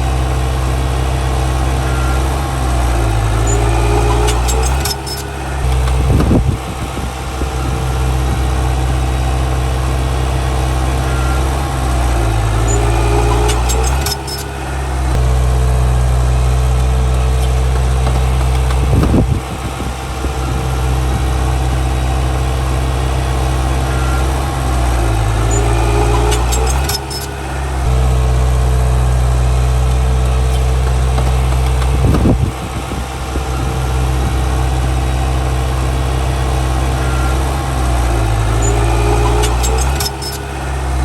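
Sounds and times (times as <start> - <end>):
bulldozer diesel engine: 0.0 - 41.0
metal clanks: 2.8 - 8.4, 11.9 - 15.2, 24.7 - 28.1, 37.1 - 41.0.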